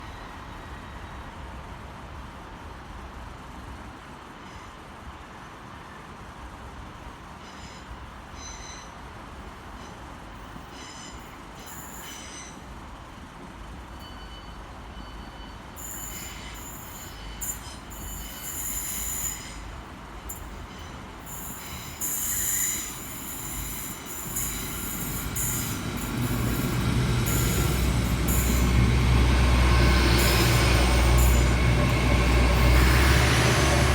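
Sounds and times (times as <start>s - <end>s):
train diesel engine drone: 0.0s - 33.9s
rails whining and hissing: 7.2s - 33.9s.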